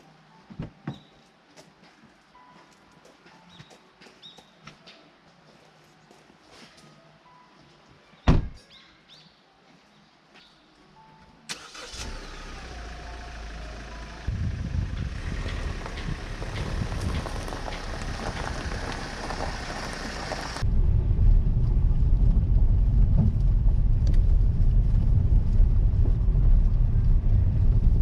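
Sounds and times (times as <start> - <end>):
car road and wind rumble: 11.6 - 28.0.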